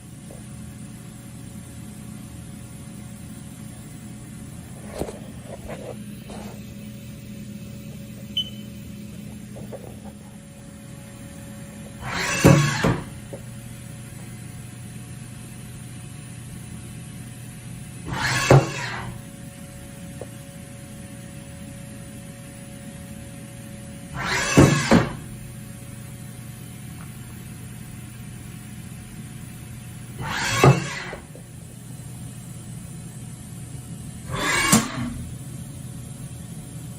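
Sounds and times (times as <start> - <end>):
machining center humming: 0.0 - 36.9
machine clatter and hiss: 2.6 - 8.3, 11.7 - 17.0, 17.7 - 19.3, 24.1 - 25.4, 26.0 - 36.9.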